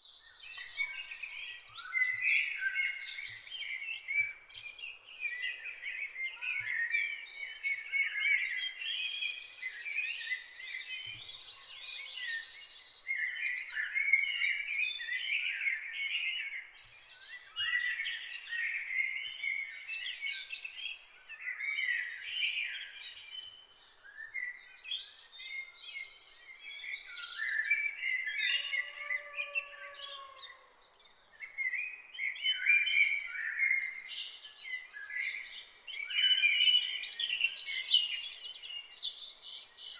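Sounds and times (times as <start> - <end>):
songbirds chirping and trilling: 0.0 - 39.9
lower drawn-out bird call: 28.3 - 30.7.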